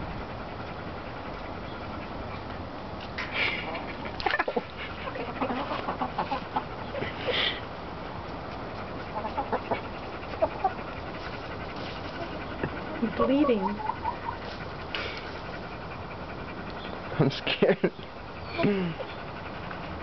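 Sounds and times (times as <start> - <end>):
chickens clucking: 3.2 - 7.6, 8.5 - 20.0.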